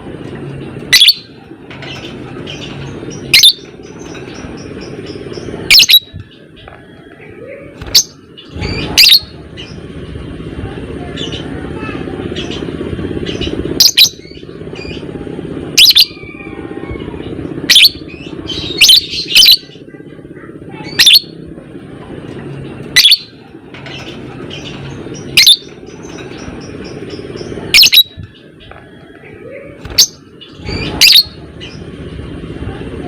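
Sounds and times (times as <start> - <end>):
steady low hum: 0.0 - 33.0
lovebird shrill calls: 3.3 - 3.6, 5.7 - 6.1, 25.4 - 25.7, 27.7 - 28.2, 29.9 - 31.4.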